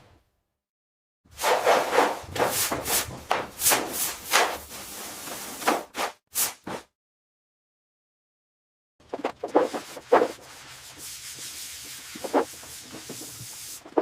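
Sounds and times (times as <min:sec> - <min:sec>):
rubbing strokes: 0:09.1 - 0:14.0.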